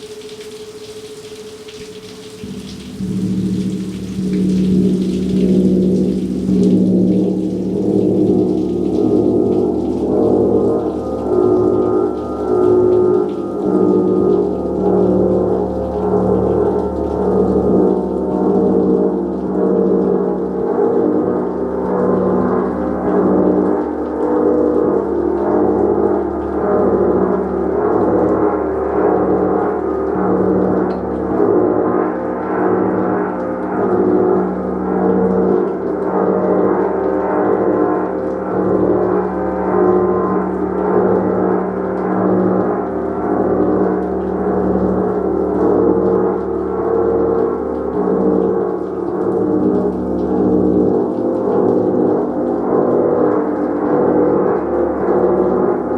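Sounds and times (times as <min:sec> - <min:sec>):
gong ringing: 0:02.4 - 0:18.7.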